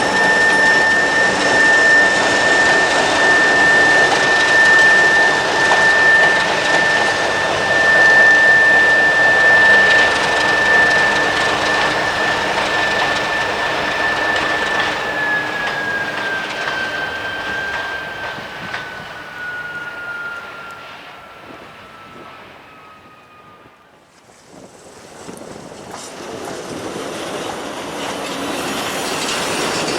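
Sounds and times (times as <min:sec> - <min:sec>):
steady high whine: 0:00.0 - 0:23.9
diesel locomotive running: 0:00.0 - 0:24.0.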